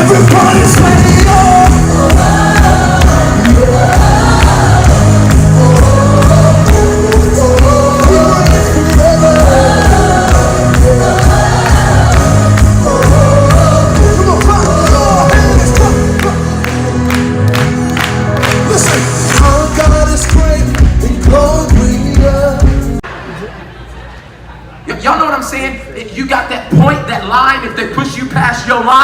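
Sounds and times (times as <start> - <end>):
crowd singing along: 0.0 - 16.6
band playing worship music: 0.0 - 23.1
bass: 0.0 - 23.1
drums: 0.0 - 23.1.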